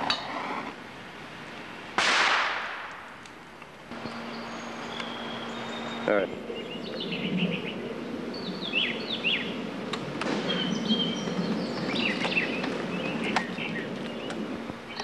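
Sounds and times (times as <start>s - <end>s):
outdoor background hum: 0.0s - 15.0s
small birds chirping: 3.9s - 15.0s.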